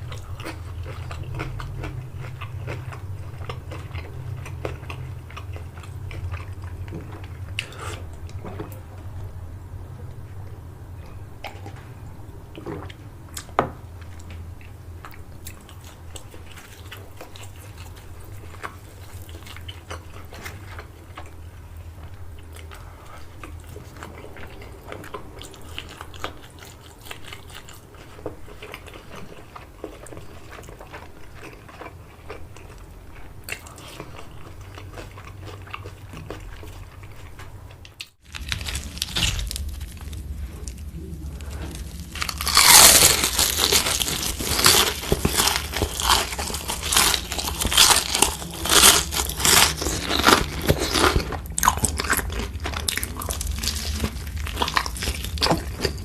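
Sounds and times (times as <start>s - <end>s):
chewing crunchy food: 0.0s - 9.2s, 10.0s - 56.0s
packaging crinkling: 38.2s - 40.8s, 41.7s - 51.2s.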